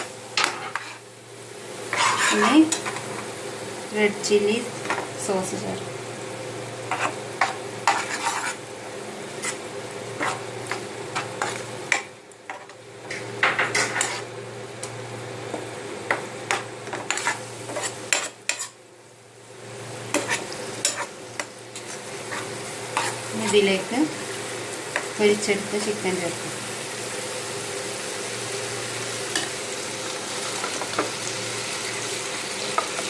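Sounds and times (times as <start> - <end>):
spices sizzling in a pan: 0.0 - 33.0
spoon stirring and scraping: 0.4 - 1.0, 1.9 - 3.2, 6.9 - 8.6, 9.4 - 9.6, 10.2 - 14.3, 16.5 - 18.8, 20.1 - 23.7.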